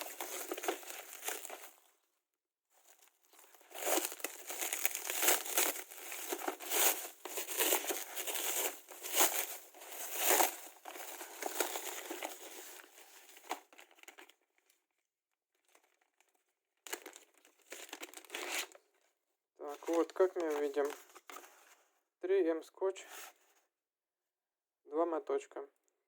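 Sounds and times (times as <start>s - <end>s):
packaging tearing: 0.0s - 1.7s, 3.0s - 13.5s, 16.9s - 18.8s
packaging crinkling and rustling: 0.0s - 1.9s, 2.8s - 14.7s, 16.9s - 18.8s, 19.7s - 21.8s.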